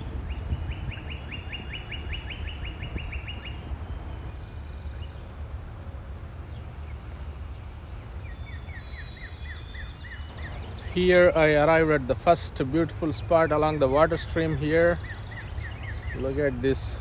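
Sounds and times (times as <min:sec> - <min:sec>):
songbird trilling: 0:00.0 - 0:05.3, 0:07.4 - 0:17.0
steady low rumble: 0:10.3 - 0:17.0.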